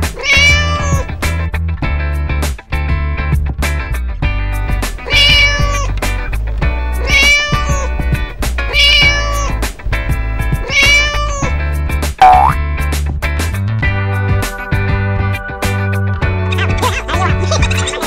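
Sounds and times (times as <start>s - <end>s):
cat meowing: 0.1s - 1.1s, 5.0s - 5.9s, 7.0s - 8.0s, 8.6s - 9.7s, 10.6s - 11.6s
children's music with steady beat: 12.2s - 12.6s.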